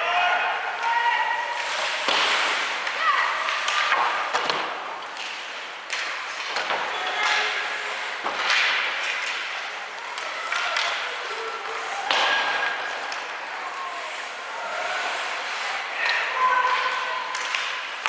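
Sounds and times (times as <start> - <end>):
clacks of sticks and puck: 0.8 - 18.0
skate blades scraping ice: 1.4 - 18.0
voices echoing: 9.6 - 18.0.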